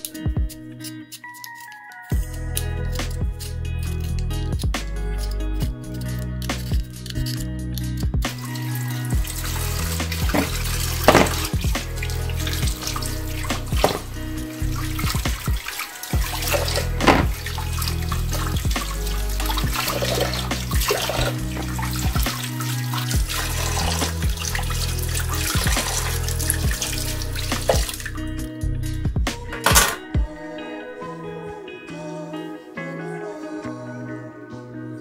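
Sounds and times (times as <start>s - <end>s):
tap water running into sink: 8.4s - 28.2s.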